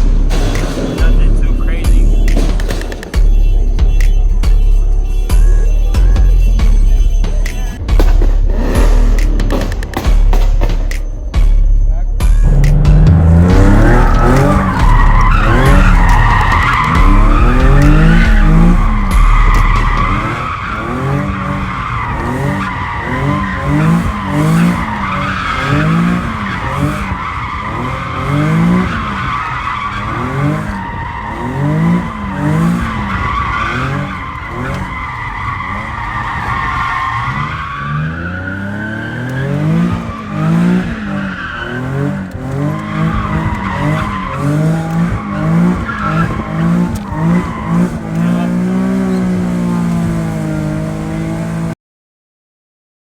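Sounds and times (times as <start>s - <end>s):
car engine revving: 0.0s - 51.8s
tyres squealing: 9.2s - 50.6s.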